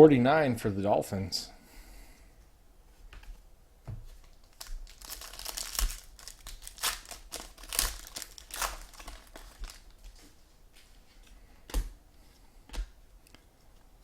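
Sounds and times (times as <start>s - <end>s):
wrapper tearing and crinkling: 4.2s - 10.2s.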